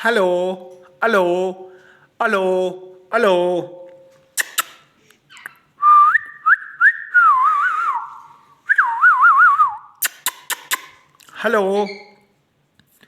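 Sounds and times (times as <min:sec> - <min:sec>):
sharp clicks: 0:10.0 - 0:11.0.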